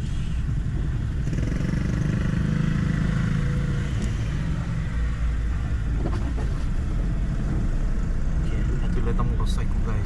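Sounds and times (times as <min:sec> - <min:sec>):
engine rumble inside car: 0:03.0 - 0:10.0.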